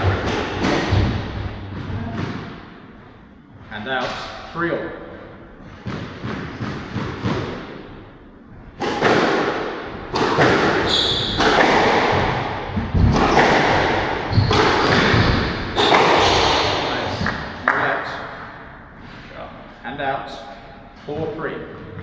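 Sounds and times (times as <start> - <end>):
squash ball hitting rackets and walls: 0.0 - 3.4, 5.2 - 19.2
shoe squeak: 10.8 - 11.6, 14.3 - 16.6.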